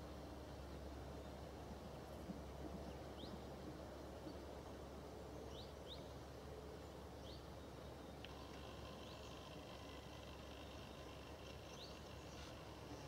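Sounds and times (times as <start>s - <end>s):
steady low hum: 0.0s - 13.0s
small bird chirping: 8.0s - 13.0s.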